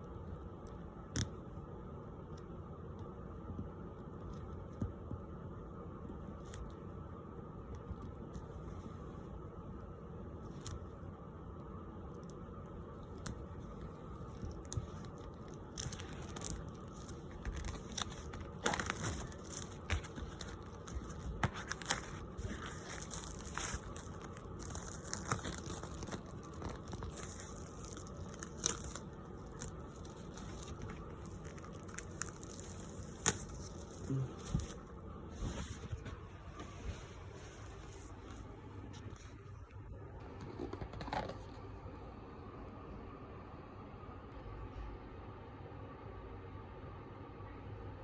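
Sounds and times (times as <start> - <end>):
low hum: 0.0 - 48.0
rustling and crinkling: 12.3 - 41.9.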